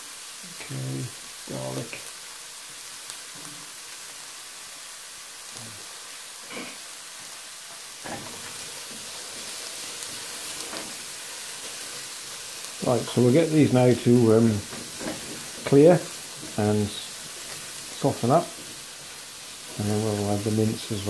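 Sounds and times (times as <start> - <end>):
onion sizzling in a frying pan: 0.0 - 21.0
spatula stirring a pan: 6.6 - 21.0.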